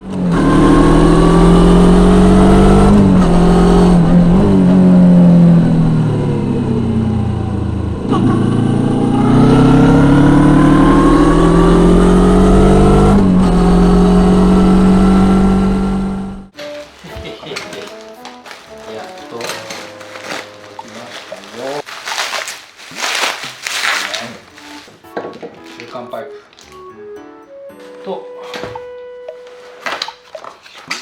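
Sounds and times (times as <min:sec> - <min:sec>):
motorcycle engine accelerating: 0:00.0 - 0:16.5.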